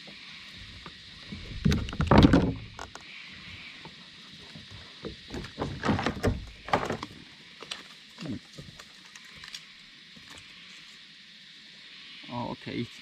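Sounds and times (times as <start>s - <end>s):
knocks against kayak hull: 1.7s - 2.8s.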